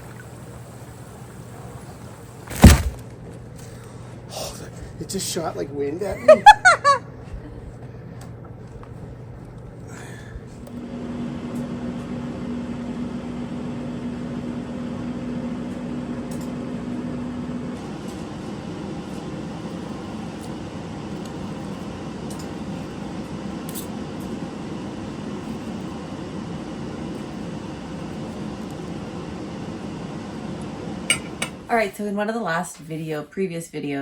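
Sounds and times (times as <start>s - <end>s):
hot tub jets rushing water: 0.0s - 3.1s
pump humming: 0.0s - 3.1s.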